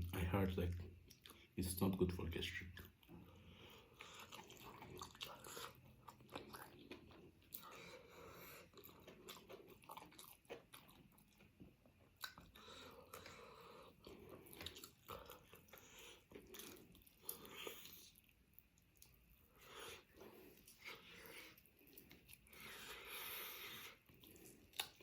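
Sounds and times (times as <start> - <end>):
person chewing food: 0.7 - 1.6, 2.8 - 25.0.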